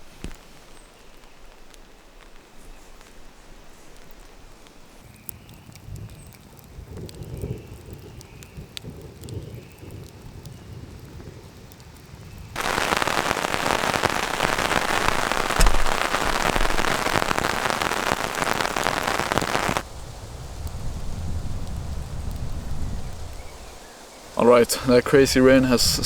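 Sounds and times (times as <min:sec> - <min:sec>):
raindrops ticking: 0:00.1 - 0:26.0
heavy rain pouring: 0:12.5 - 0:26.0
sharp low thud: 0:14.1 - 0:17.5.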